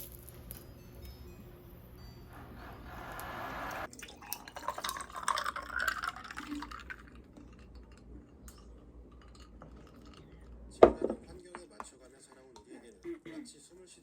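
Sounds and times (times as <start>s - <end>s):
liquid pouring into container: 3.1s - 8.0s.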